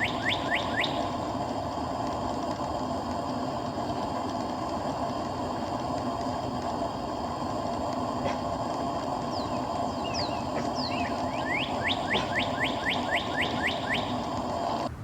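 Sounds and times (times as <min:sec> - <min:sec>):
songbird singing: 0:00.0 - 0:01.2, 0:09.2 - 0:14.3
steady low hum: 0:00.0 - 0:15.0.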